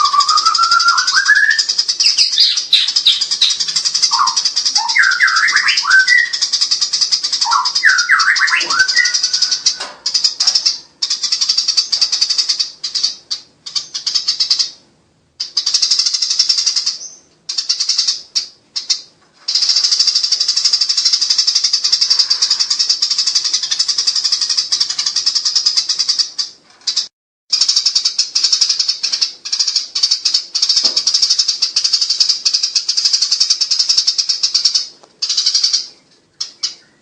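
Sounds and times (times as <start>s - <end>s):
sparrows chattering harshly: 0.0s - 37.0s.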